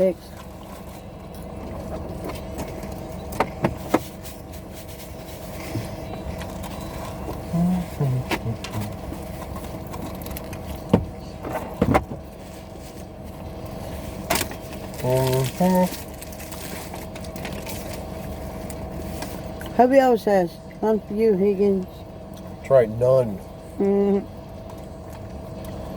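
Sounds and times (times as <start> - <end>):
car interior engine hum: 0.0 - 25.9.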